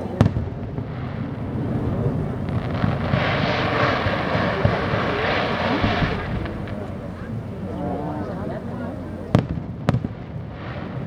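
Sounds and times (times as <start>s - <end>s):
dull firework thumps: 0.2s - 10.0s
low rumble: 0.5s - 9.3s
fireworks hissing shower: 0.7s - 9.4s.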